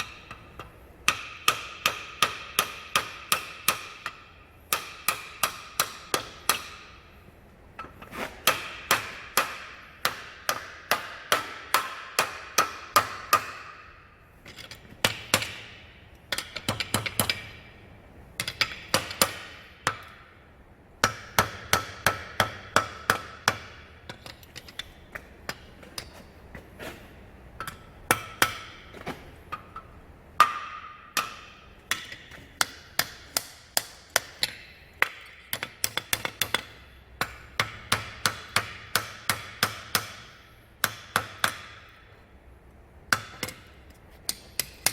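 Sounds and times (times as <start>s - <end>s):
hammer striking steel on anvil: 0.0s - 7.1s, 7.8s - 17.7s, 18.4s - 20.3s, 21.0s - 26.3s, 27.6s - 42.1s, 43.1s - 44.9s.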